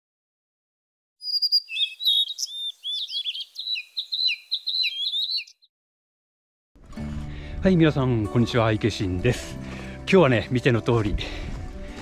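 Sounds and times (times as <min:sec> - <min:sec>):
small birds chirping and twittering: 0:01.2 - 0:05.7.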